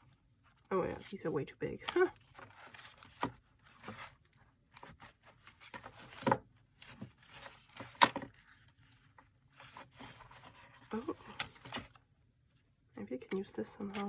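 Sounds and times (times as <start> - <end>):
paper rustling and sliding: 2.1 - 12.0.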